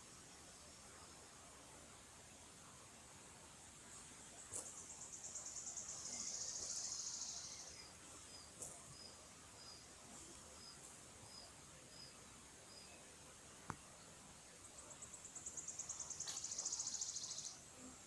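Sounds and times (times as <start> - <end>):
faint high hiss: 0.0 - 18.0
songbird singing buzzing trill: 4.3 - 13.1, 14.6 - 18.0.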